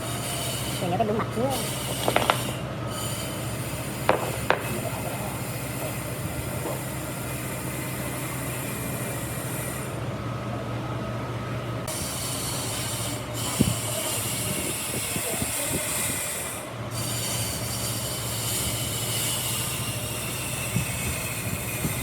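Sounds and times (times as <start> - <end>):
machine humming and hissing: 0.0 - 22.0
light knocks: 4.1 - 4.8.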